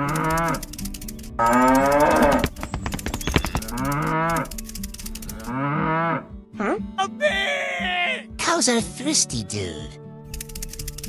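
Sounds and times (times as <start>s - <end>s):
sharp clicks: 0.0s - 5.5s, 10.3s - 11.0s
cow mooing: 1.4s - 2.5s, 3.6s - 4.5s, 5.4s - 6.3s.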